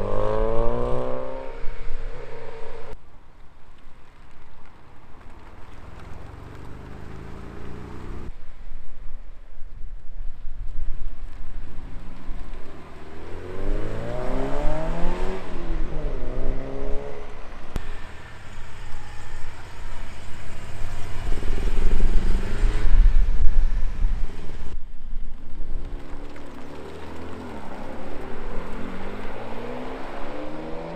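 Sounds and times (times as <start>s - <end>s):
car accelerating: 0.0s - 3.0s, 5.3s - 8.3s, 11.7s - 24.8s, 25.7s - 30.9s
car engine rumble pulling off: 5.2s - 8.4s, 11.3s - 30.9s.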